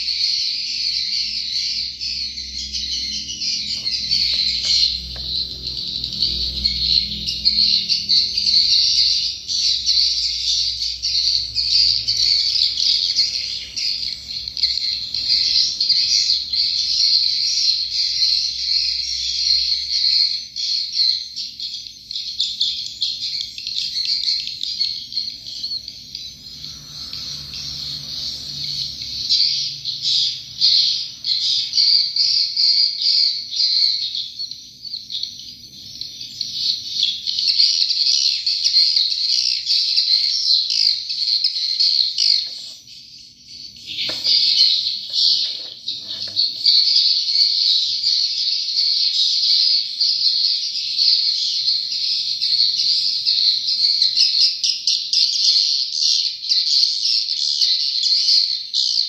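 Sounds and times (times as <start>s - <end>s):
flock of swiftlets twittering: 24.0s - 34.0s.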